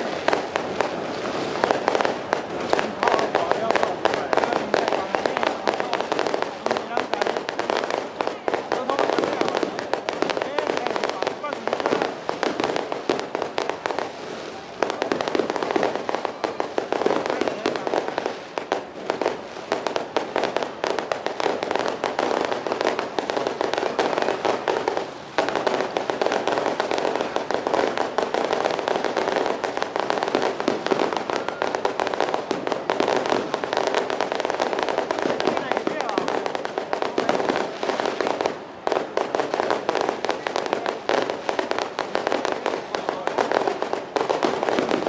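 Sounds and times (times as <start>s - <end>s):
firecrackers crackling: 0.0s - 45.0s.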